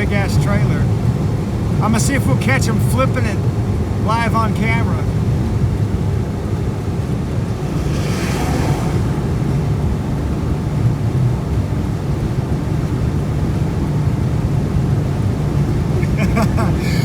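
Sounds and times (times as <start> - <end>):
wind and road noise: 0.0 - 17.0
wind buffeting microphone: 0.0 - 17.0
whoosh: 7.2 - 11.2.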